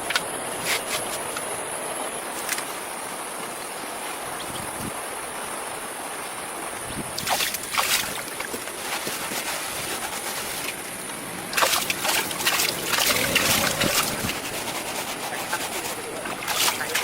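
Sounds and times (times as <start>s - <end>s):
water splashing and sloshing: 6.6s - 17.0s.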